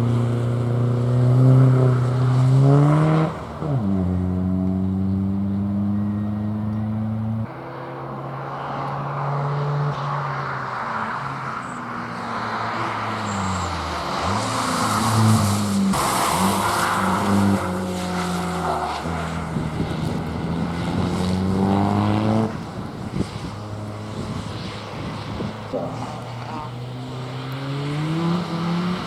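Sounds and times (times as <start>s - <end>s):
race car engine shifting gears: 12.3s - 29.0s.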